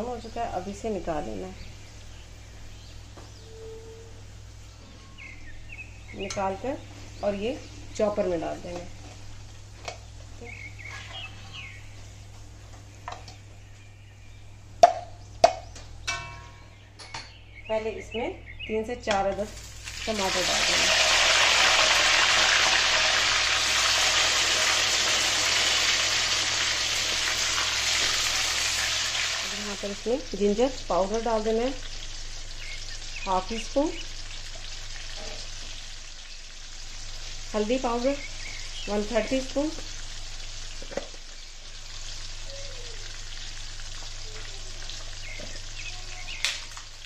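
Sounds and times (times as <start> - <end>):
tomatoes sizzling in hot oil: 19.4 - 47.0.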